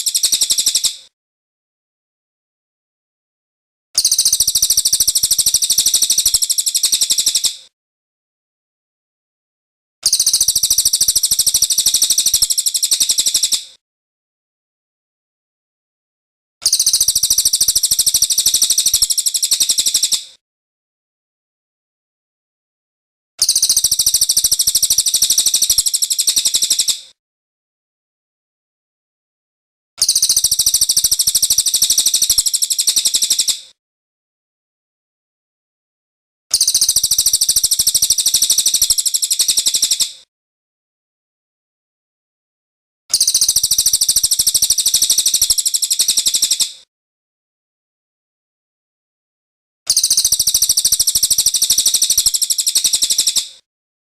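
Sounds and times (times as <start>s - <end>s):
bird high-pitched rolling trill: 49.9s - 53.4s.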